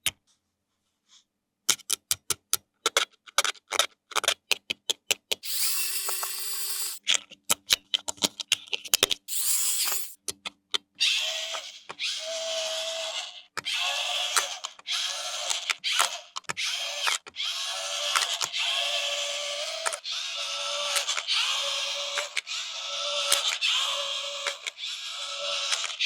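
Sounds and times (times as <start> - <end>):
small electric motor whirring: 5.4 - 7.0, 9.3 - 10.2, 11.1 - 26.0.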